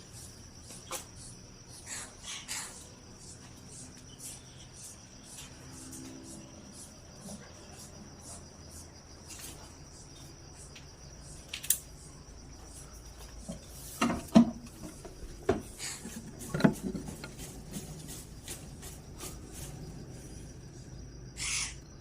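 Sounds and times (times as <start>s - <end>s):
high pulsing insect-like trill: 0.0s - 22.0s
sharp knocks and clatters: 13.4s - 19.9s.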